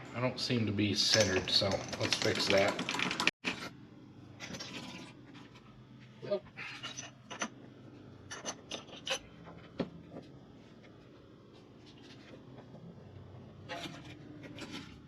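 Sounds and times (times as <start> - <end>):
rubbing and scraping: 13.6 - 15.0.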